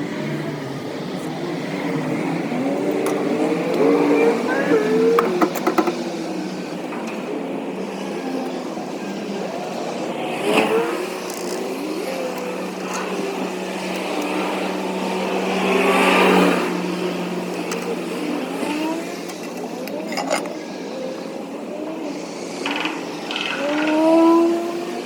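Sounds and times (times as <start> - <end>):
truck idling hum: 0.0 - 10.2.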